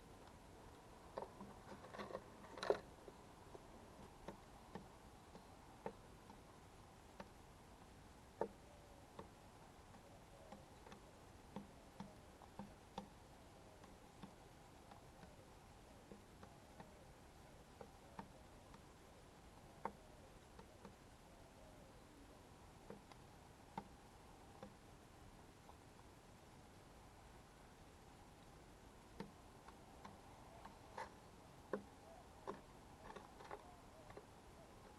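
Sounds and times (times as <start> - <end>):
birds pecking at feeder: 0.0 - 34.9
faint steady hiss: 0.0 - 34.9
faint taps and clicks: 29.1 - 34.9.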